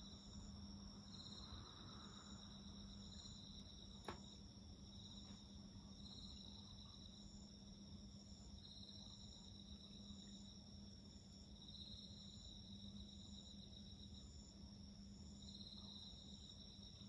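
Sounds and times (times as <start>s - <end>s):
insects trilling and chirping: 0.0s - 17.0s.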